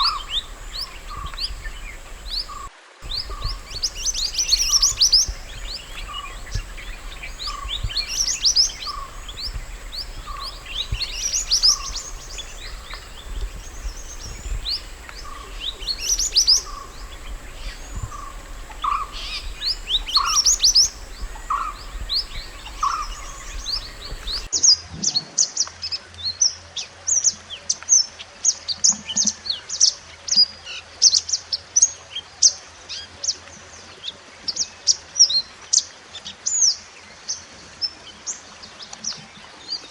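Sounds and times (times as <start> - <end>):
low repeating bird note: 0.0 - 24.5
songbirds chirping and twittering: 0.0 - 24.5.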